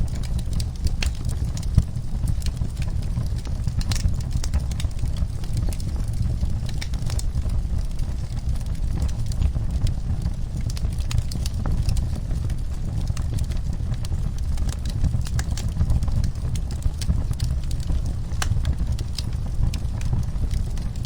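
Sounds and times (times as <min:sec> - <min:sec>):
wood fire crackling and popping: 0:00.0 - 0:21.0.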